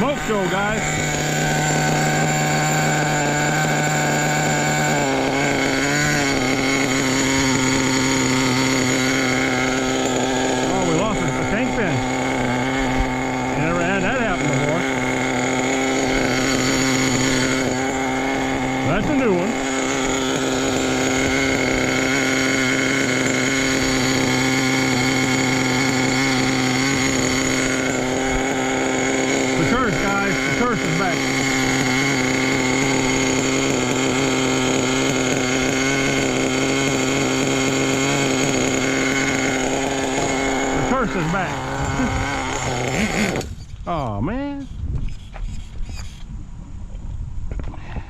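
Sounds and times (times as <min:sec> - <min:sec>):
small model engine running: 0:00.0 - 0:46.3.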